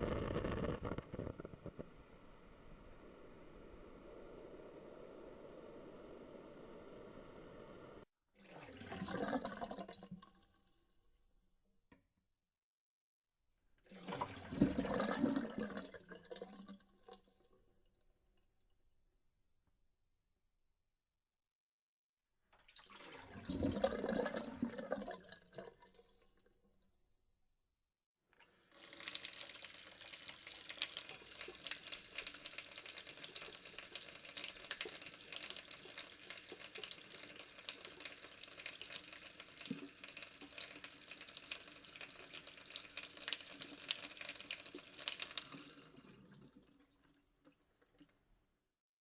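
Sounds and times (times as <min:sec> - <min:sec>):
burst of water: 0:00.0 - 0:08.0
tap water running into sink: 0:28.6 - 0:46.5.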